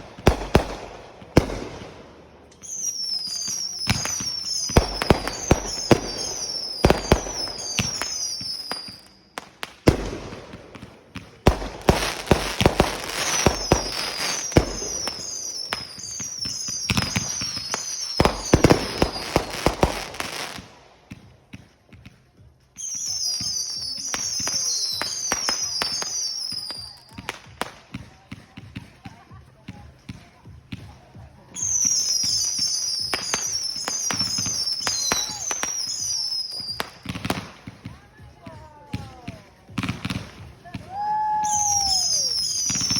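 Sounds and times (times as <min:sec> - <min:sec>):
fireworks bangs and crackles: 0:00.0 - 0:42.9
high falling firework whistles: 0:02.6 - 0:09.3, 0:13.2 - 0:19.5, 0:31.6 - 0:37.0, 0:40.9 - 0:42.9.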